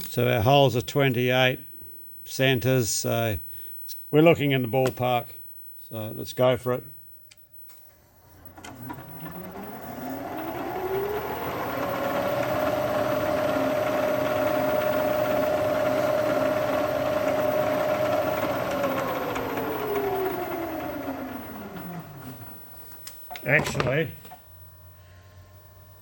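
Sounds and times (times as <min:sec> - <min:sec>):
machine tool motor whine: 0:07.8 - 0:26.0.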